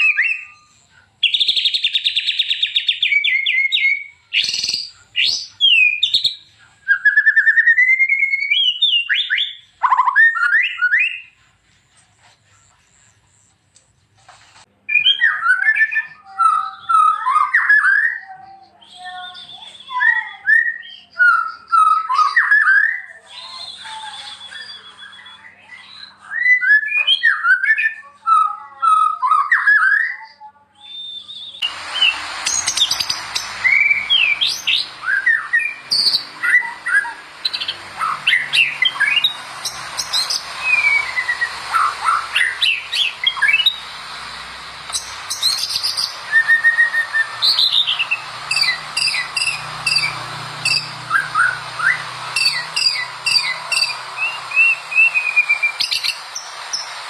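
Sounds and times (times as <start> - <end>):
bird singing whistles: 0.0 - 11.4, 14.9 - 57.0
steady hiss: 31.6 - 57.0.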